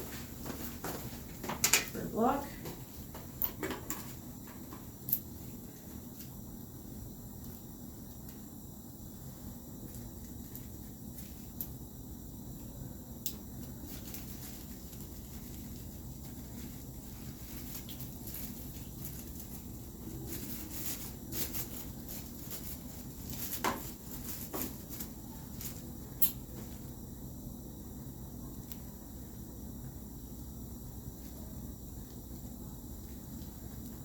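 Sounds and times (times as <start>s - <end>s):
low room hum: 0.0s - 34.0s
rustling of items handled: 13.5s - 26.9s.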